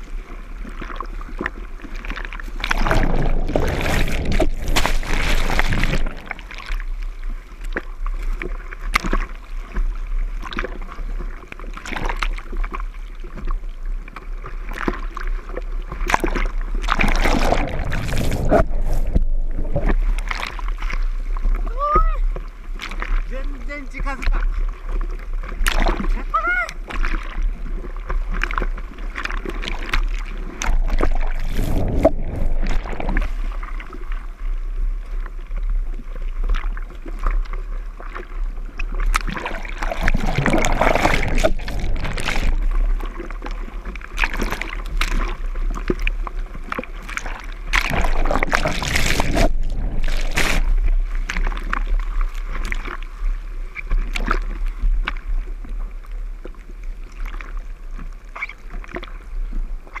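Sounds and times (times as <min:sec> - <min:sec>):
rushes of water: 0:00.0 - 1:00.0
water splashing around surfboard: 0:00.0 - 1:00.0.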